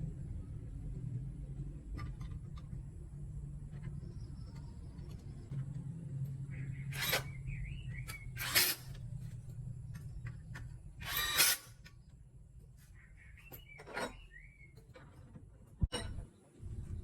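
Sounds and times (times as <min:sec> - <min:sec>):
low steady hum: 0:00.0 - 0:17.0
birds chirping: 0:03.4 - 0:09.2, 0:09.8 - 0:15.3.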